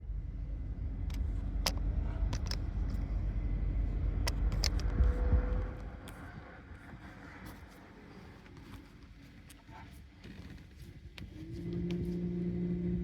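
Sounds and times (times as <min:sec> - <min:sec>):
car engine rumbling: 0:00.0 - 0:09.7
sharp clicks and rattles: 0:01.0 - 0:03.2, 0:04.1 - 0:06.2.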